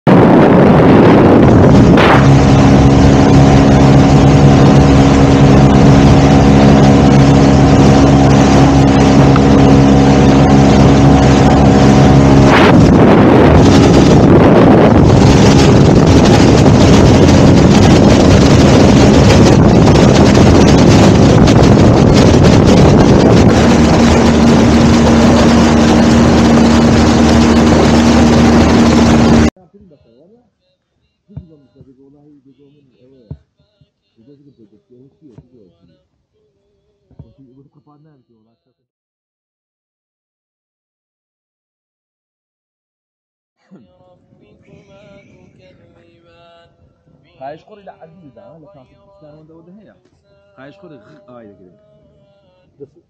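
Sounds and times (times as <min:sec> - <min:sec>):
rush of water and wind: 0:00.1 - 0:29.5
speedboat engine drone: 0:00.1 - 0:29.5
steady low hum: 0:00.9 - 0:30.1.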